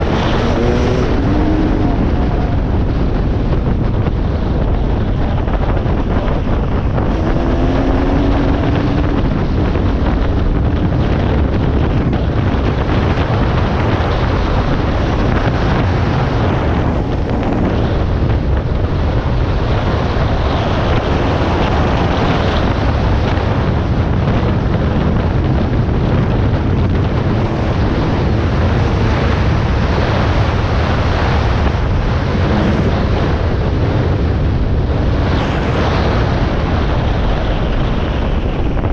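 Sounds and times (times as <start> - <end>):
dirt bike engine running: 0.0 - 20.2
wind noise on microphone: 0.0 - 38.9.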